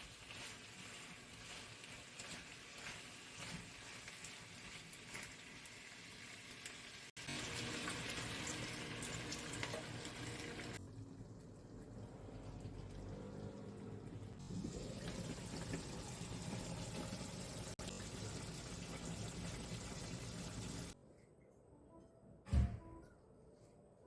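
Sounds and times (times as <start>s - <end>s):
food sizzling in a frying pan: 0.0s - 10.8s, 14.4s - 21.0s.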